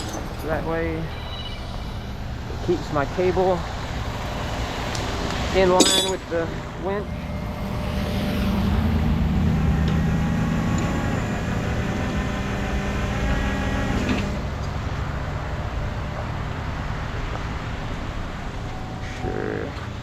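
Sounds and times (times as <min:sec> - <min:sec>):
winch whining: 0:00.0 - 0:14.5
truck engine running: 0:00.0 - 0:20.0.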